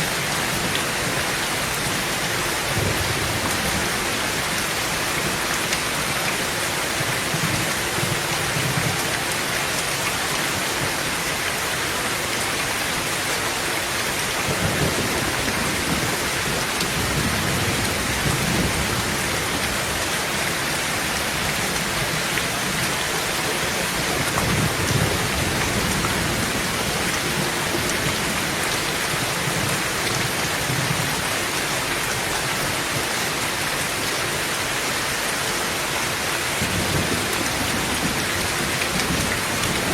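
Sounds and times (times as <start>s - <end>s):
heavy rain on a tin roof: 0.0s - 39.9s
low thunder rumbling: 14.5s - 20.0s, 21.2s - 31.1s.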